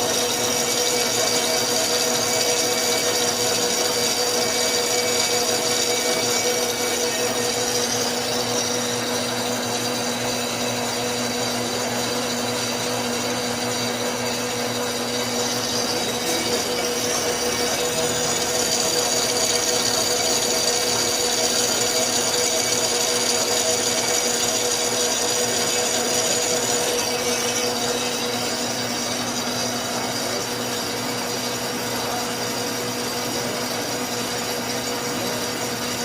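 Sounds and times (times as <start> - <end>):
lathe humming: 0.0 - 36.0
lathe tool cutting hiss: 0.0 - 36.0.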